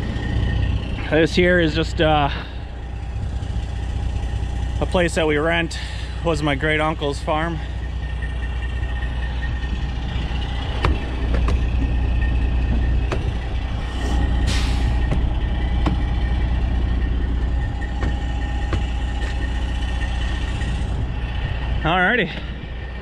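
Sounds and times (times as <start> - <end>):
diesel truck engine rumbling: 0.0 - 23.0
sharp clicks and knocks: 10.7 - 14.4, 15.0 - 16.2, 17.2 - 19.6.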